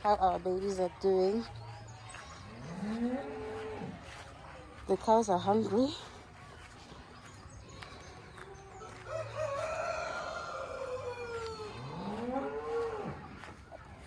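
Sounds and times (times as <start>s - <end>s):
rooster crowing: 8.8s - 13.5s
cow mooing: 11.7s - 13.2s.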